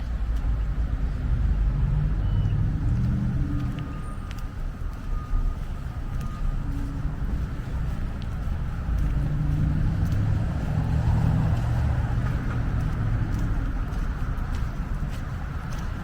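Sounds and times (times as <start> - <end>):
car driving past: 8.8 - 14.0.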